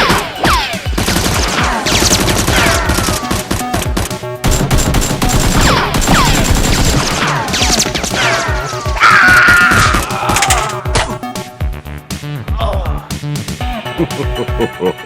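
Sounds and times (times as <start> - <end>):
rapid automatic gunfire: 0.9 - 8.7.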